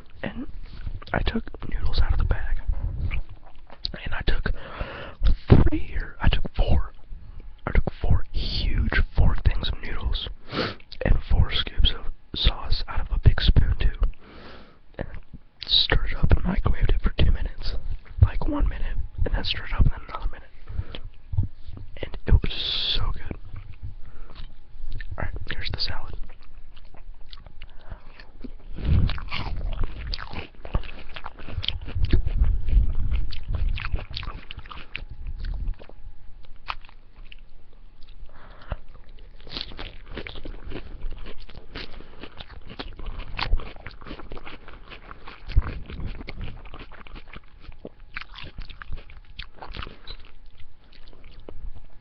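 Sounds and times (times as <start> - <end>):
salad being chewed: 2.6 - 4.0, 23.3 - 52.0.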